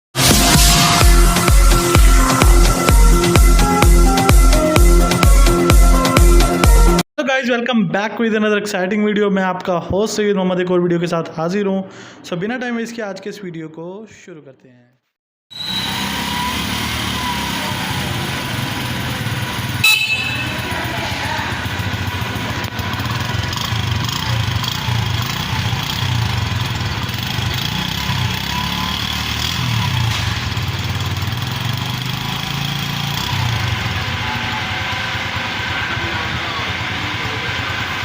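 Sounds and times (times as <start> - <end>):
motorcycle engine running: 15.6 - 38.0.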